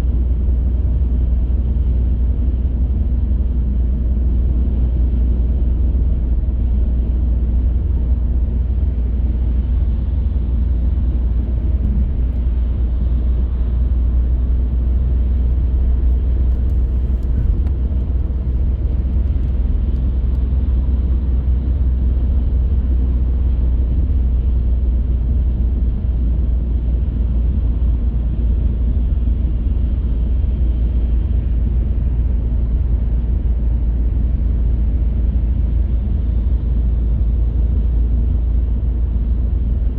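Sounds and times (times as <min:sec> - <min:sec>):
car driving: 0:03.8 - 0:23.9.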